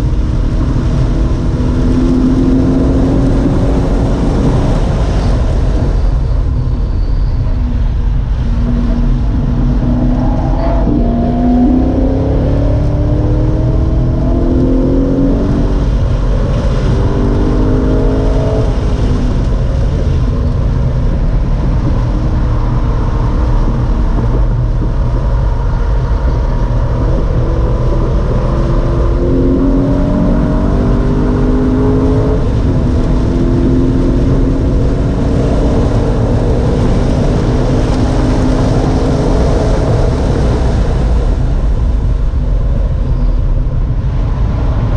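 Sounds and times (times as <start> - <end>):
race car engine at full throttle: 0.0 - 44.9.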